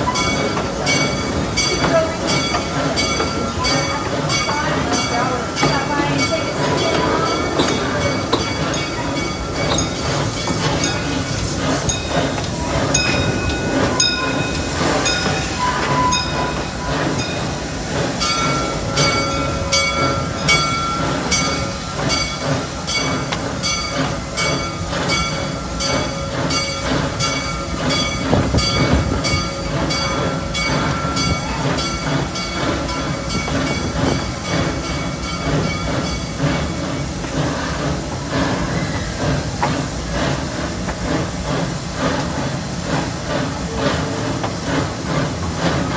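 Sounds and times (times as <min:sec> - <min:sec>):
train rumble: 0:00.0 - 0:45.9
high wheel squeal: 0:06.1 - 0:17.5.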